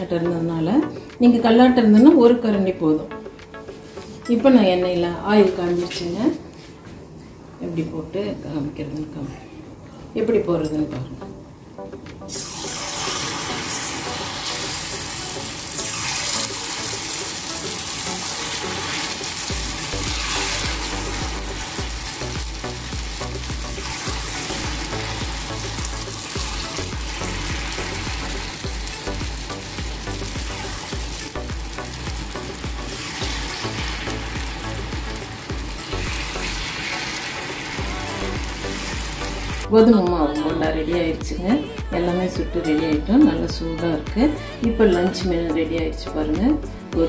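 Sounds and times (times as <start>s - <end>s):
batter sizzling in hot oil: 12.3s - 39.7s.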